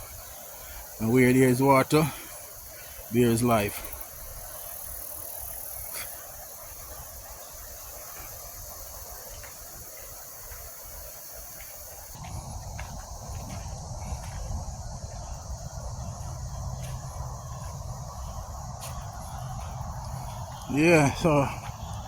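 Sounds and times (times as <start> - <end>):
insects chirring: 0.0 - 22.0
low rumbling noise: 12.2 - 22.0.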